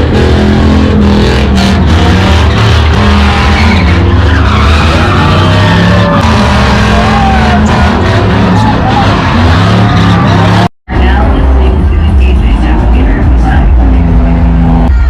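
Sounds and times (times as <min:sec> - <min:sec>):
engine running hard: 0:00.0 - 0:14.9
tyres squealing: 0:00.4 - 0:10.7.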